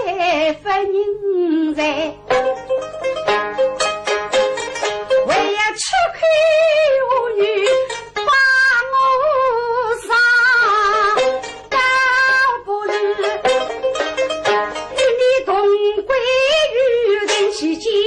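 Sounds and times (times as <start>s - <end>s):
plucked-string accompaniment: 0.0s - 18.0s.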